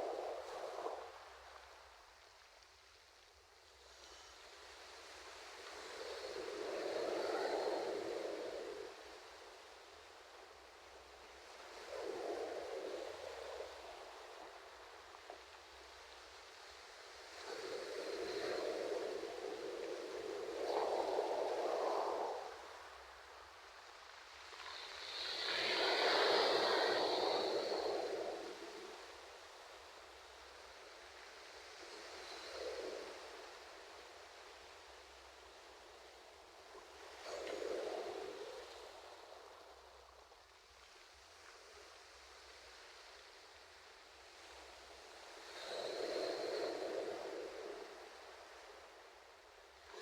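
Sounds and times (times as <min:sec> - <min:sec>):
ocean waves washing on shore: 0:11.3 - 0:40.4.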